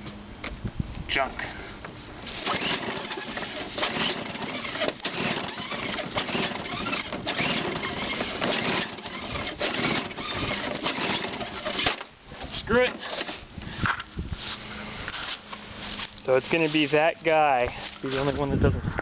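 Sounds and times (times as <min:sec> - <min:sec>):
engine turning over: 0:01.9 - 0:15.2
recoil pull-starter yanked: 0:02.3 - 0:14.1.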